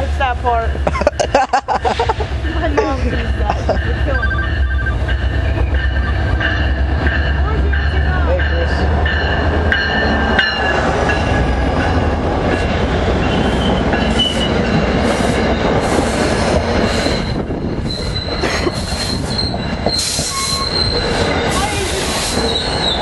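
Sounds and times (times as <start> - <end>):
train rumbling and clattering past: 0.0 - 23.0
train wheels squealing: 13.2 - 23.0.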